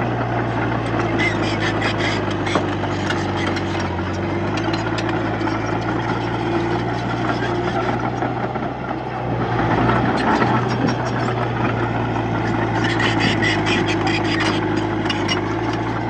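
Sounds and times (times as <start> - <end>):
bulldozer diesel engine running: 0.0 - 16.0
metallic clanks and rattles: 2.2 - 8.3.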